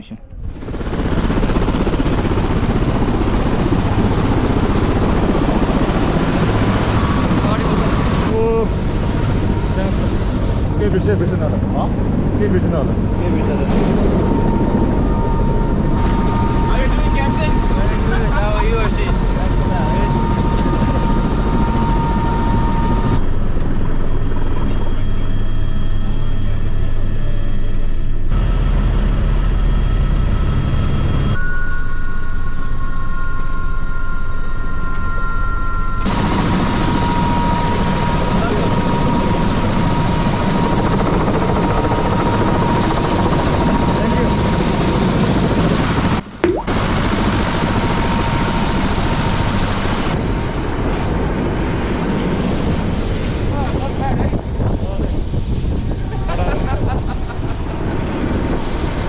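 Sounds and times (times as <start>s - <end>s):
helicopter rotor and engine noise: 0.0s - 59.0s
high whine: 13.3s - 23.4s.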